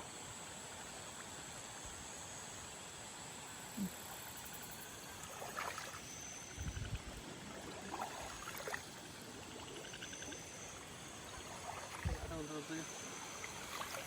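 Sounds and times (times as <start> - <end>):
steady background hiss: 0.0 - 14.0
water sloshing and splashing: 5.2 - 14.0.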